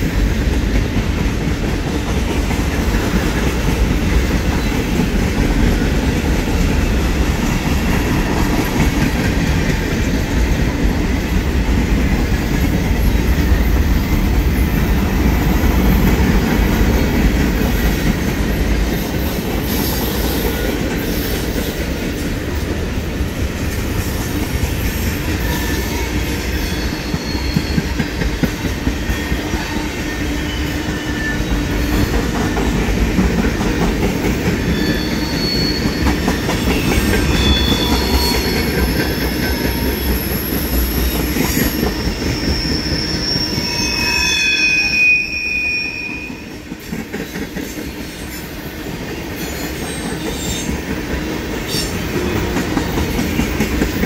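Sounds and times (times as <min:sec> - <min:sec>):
steel wheels rumbling on rail: 0:00.0 - 0:54.0
high-pitched wheel squeals: 0:25.4 - 0:28.1, 0:34.6 - 0:46.5.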